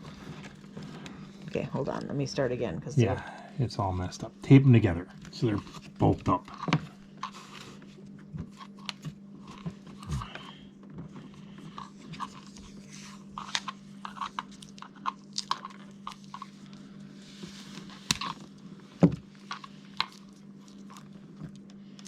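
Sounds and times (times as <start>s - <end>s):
steady low hum: 0.0s - 22.0s
hands handling wires and tape: 5.3s - 22.0s.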